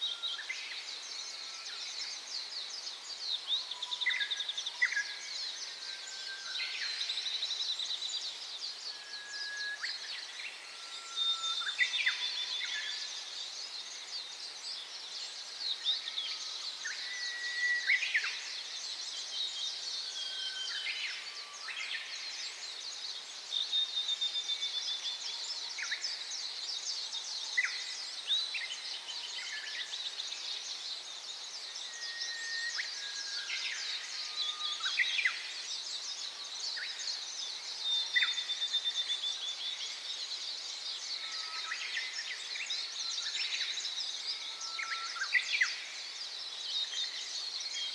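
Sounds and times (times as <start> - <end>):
whistled bird notes: 15.8 - 18.6, 31.7 - 35.5.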